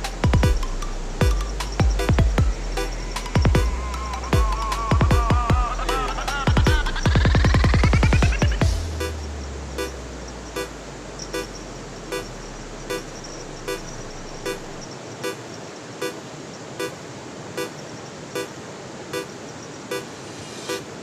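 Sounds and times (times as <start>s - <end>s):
electronic music bass drop: 0.0s - 14.8s
steady hiss: 0.0s - 21.0s
short horn-like beeps: 10.6s - 15.4s, 16.0s - 16.2s, 16.8s - 17.0s, 17.6s - 17.8s, 19.1s - 20.1s.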